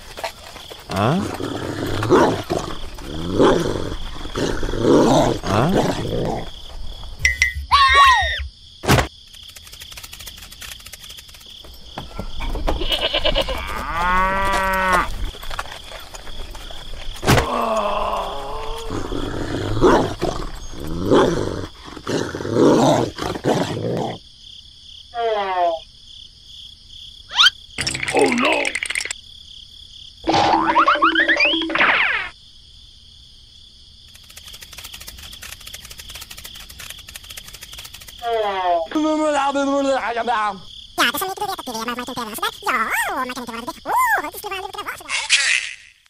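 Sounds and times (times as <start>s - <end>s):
cattle-like moo: 13.6s - 15.1s
animal call sound effects: 27.3s - 28.8s.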